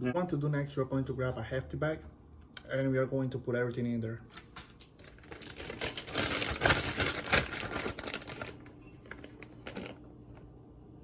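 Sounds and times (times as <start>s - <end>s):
plastic bag crinkling: 5.0s - 10.1s.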